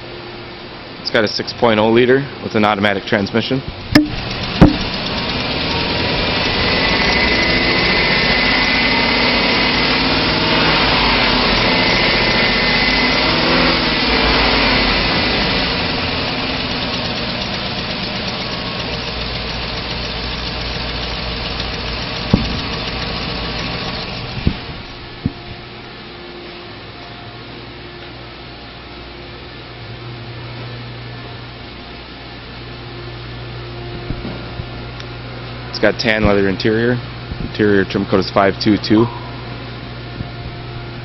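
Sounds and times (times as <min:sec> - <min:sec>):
car engine revving and running: 0:03.7 - 0:25.4.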